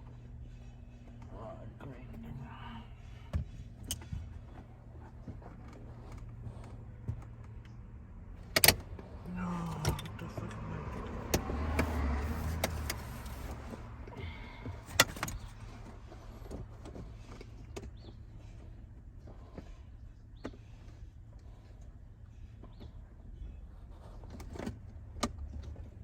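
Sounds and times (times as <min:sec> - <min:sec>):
sharp clicks and knocks: 0:08.4 - 0:09.1, 0:09.7 - 0:13.7
rubbing and rattling: 0:08.4 - 0:18.6.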